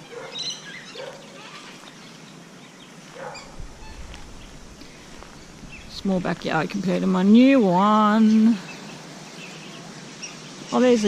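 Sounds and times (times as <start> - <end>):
birds chirping: 0.0 - 11.0
microphone rumble: 3.4 - 7.3.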